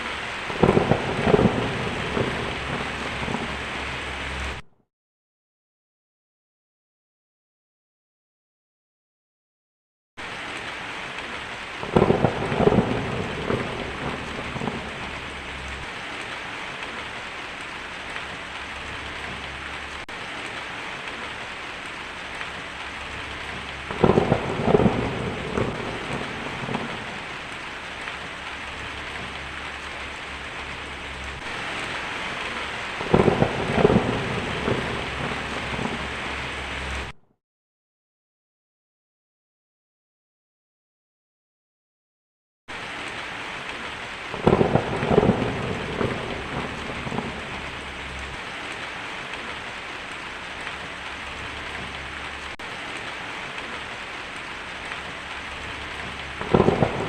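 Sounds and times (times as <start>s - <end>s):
steady rain falling: 0.0s - 4.6s, 10.2s - 37.2s, 42.7s - 57.0s
thunderclaps with rumbling: 0.1s - 4.6s, 11.4s - 17.0s, 22.1s - 37.2s, 43.7s - 57.0s.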